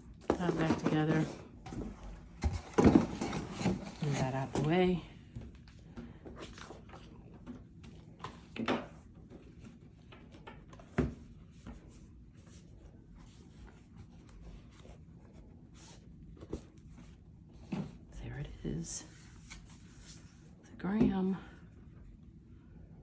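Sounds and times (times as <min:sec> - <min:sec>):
packaging rubbing and scraping: 0:02.5 - 0:04.8.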